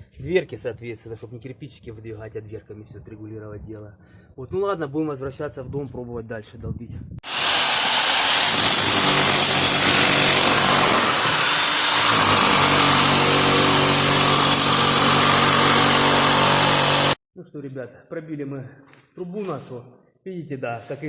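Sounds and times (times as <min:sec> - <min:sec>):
rotary hammer chiselling masonry: 0:07.3 - 0:17.2.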